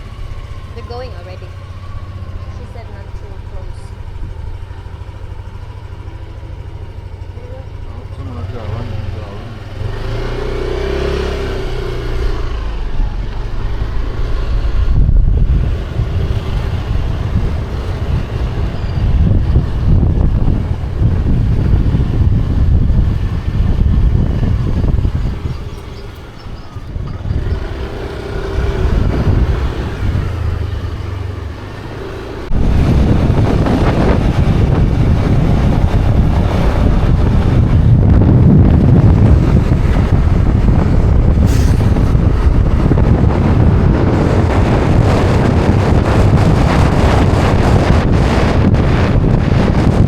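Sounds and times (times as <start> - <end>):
car engine and road noise: 0.0 - 50.0
wind buffeting microphone: 0.0 - 50.0.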